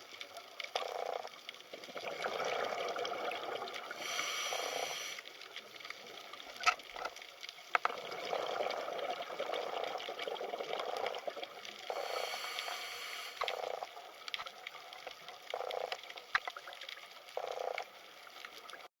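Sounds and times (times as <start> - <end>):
small clicks: 13.3 - 18.8.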